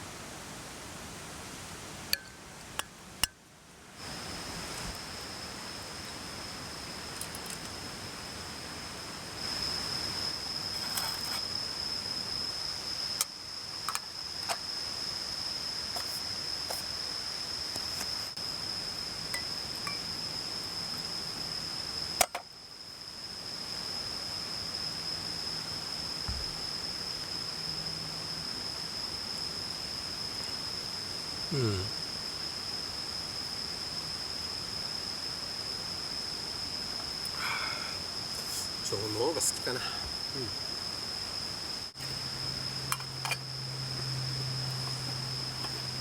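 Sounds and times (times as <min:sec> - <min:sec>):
insect trilling: 0:04.0 - 0:46.0
light clinks: 0:19.3 - 0:20.1.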